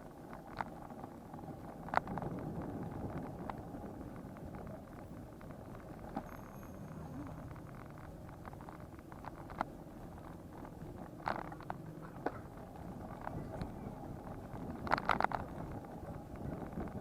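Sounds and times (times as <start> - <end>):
bicycle road noise rumble: 0.0 - 17.0
clicks and rattles: 1.8 - 17.0.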